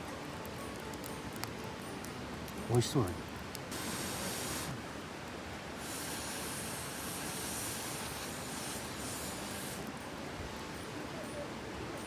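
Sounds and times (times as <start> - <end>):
peppers sizzling: 3.6 - 4.8, 5.8 - 9.9.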